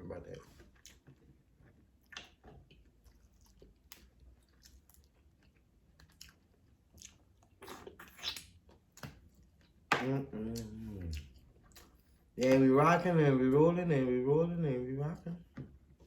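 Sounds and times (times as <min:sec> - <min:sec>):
person chewing: 0:00.4 - 0:09.8, 0:10.4 - 0:12.4.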